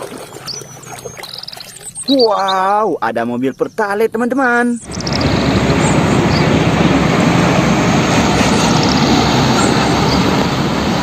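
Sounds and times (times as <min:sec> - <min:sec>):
water spraying: 0:00.0 - 0:02.3, 0:04.9 - 0:11.0.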